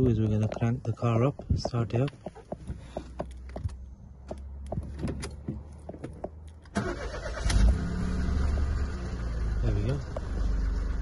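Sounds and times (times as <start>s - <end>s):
car engine idling: 2.6s - 11.0s
car engine cranking: 4.8s - 11.0s.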